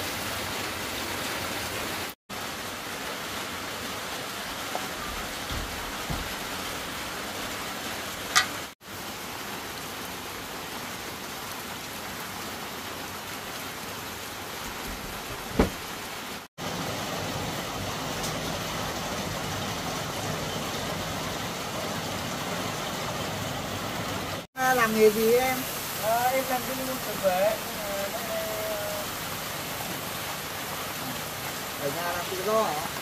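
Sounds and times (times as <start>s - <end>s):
food sizzling in a pan: 24.6s - 28.2s.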